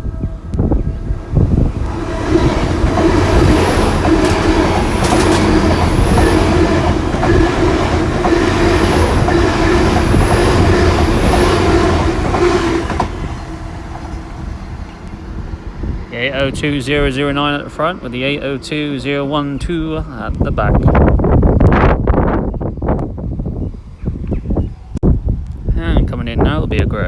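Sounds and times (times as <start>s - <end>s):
train diesel engines: 0.0s - 21.6s
wheels running on rails: 1.0s - 20.4s
clickety-clack over rail joints: 1.8s - 15.2s.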